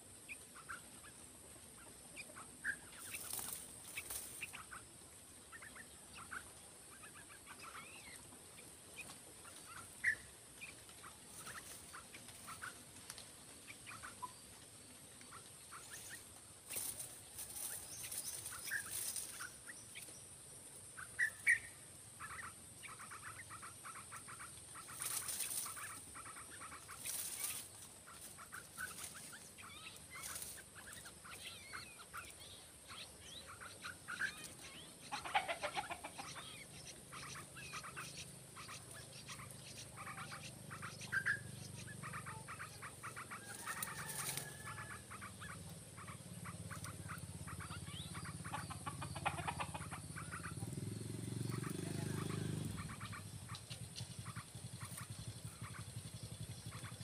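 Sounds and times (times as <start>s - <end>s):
birds chattering: 0.0s - 57.0s.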